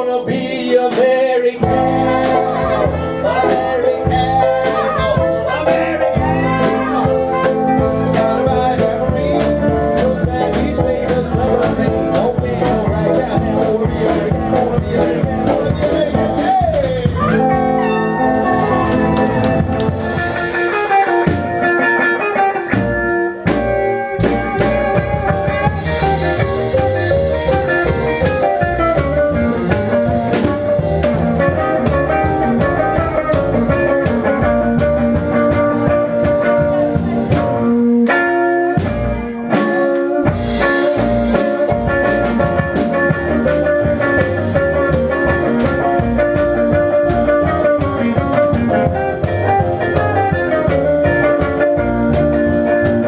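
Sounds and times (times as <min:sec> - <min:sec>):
swing band playing: 0:00.0 - 0:53.0
band stop-time hits: 0:18.4 - 0:22.0.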